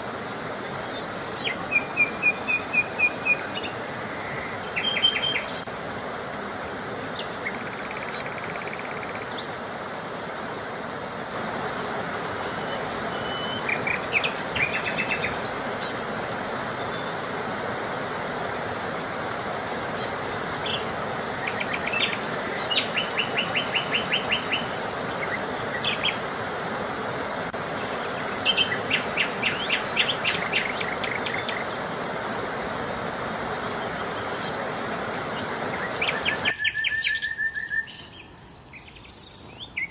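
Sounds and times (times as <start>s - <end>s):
songbirds chirping and trilling: 0.0s - 9.9s, 10.5s - 39.9s
steady background hiss: 0.0s - 39.9s.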